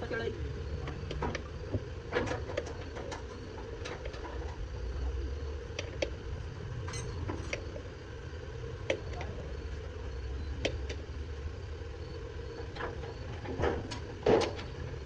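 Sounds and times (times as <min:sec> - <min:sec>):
tractor engine idling: 0:00.0 - 0:15.0
sharp metallic clicks and knocks: 0:00.8 - 0:04.6, 0:12.6 - 0:14.8.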